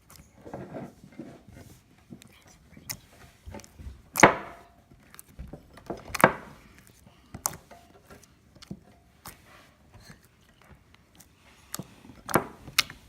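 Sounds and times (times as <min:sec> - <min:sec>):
slime squelching: 0:06.0 - 0:13.0.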